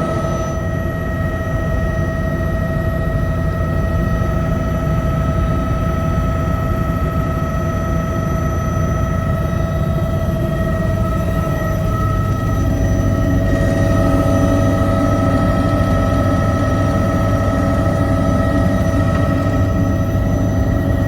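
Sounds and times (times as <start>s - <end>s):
high whine: 0.0s - 1.2s, 9.1s - 21.0s
helicopter engine and rotor rumble: 0.0s - 21.0s.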